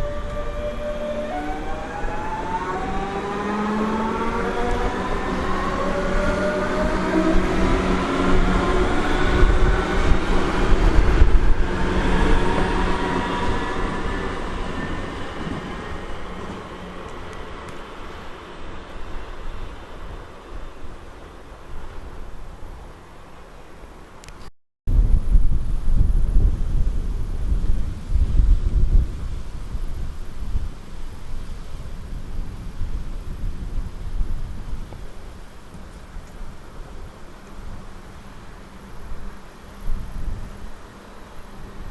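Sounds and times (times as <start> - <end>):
wind buffeting microphone: 0.0 - 21.0, 24.9 - 41.9
train wheels rumbling: 0.0 - 21.9
train whine: 0.0 - 24.0.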